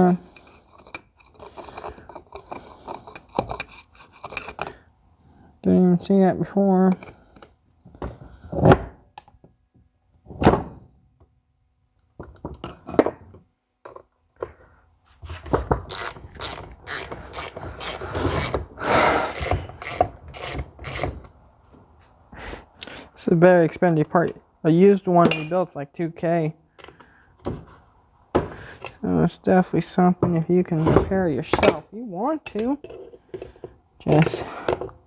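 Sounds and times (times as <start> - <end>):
metal tools knocking and clinking: 25.2 - 25.6.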